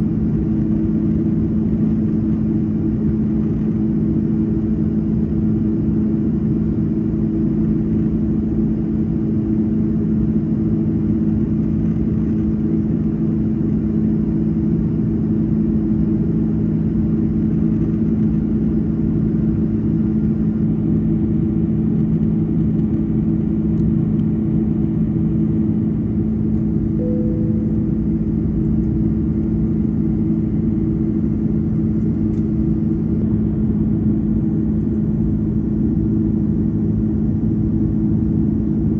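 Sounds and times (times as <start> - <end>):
jet engine drone in cabin: 0.0 - 38.9.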